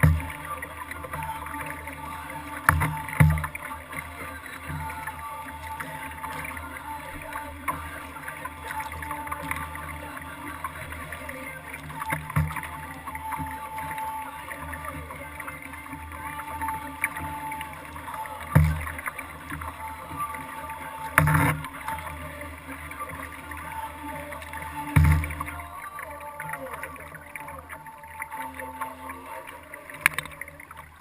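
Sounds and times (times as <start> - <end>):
water wash on hull: 0.0 - 31.0.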